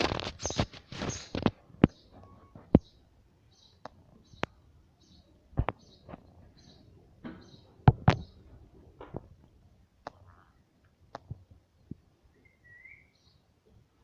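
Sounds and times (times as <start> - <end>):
sharp taps and knocks: 5.6 - 6.2, 7.2 - 8.4.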